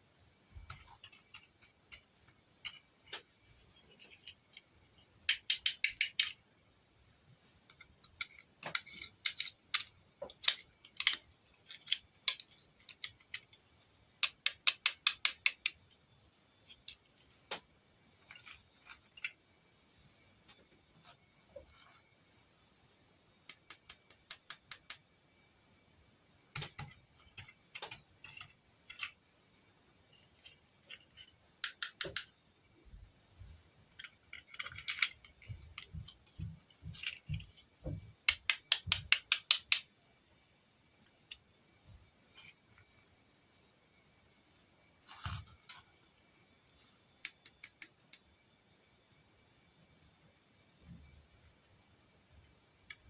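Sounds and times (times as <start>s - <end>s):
plastic toy pieces clicking: 3.9s - 6.4s, 7.7s - 13.6s, 14.2s - 16.0s, 23.5s - 25.0s, 26.5s - 29.2s, 30.2s - 32.3s, 33.9s - 37.6s, 38.3s - 39.9s, 47.2s - 48.3s.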